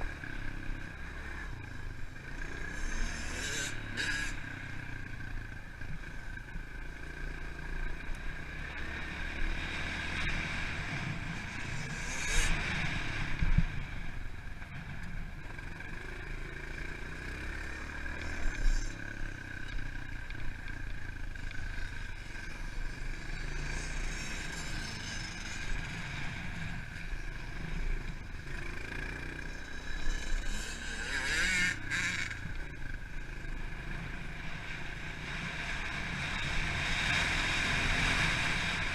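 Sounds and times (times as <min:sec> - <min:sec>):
pit bike engine revving: 0:00.0 - 0:04.8, 0:21.6 - 0:38.9.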